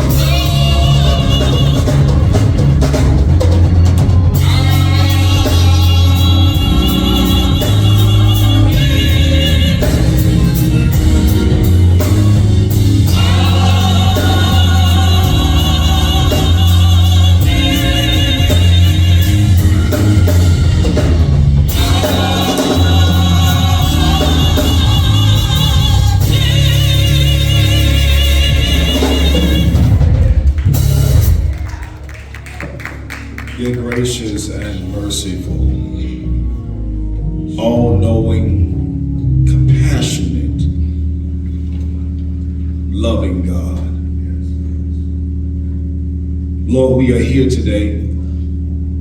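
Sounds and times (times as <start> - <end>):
gospel choir singing: 0.0 - 31.6
church band with drum kit: 0.0 - 49.0.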